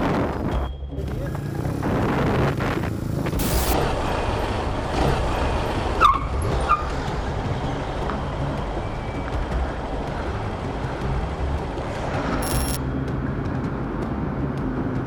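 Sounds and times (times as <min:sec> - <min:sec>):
road traffic rumble: 0:01.3 - 0:15.0
short high-pitched chirps: 0:12.4 - 0:12.8.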